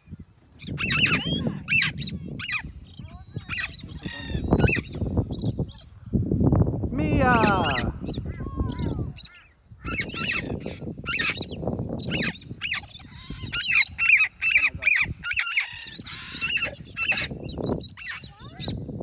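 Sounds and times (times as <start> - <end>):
parrots squawking and screeching: 0.6 - 2.7, 3.4 - 5.0, 7.7 - 18.7.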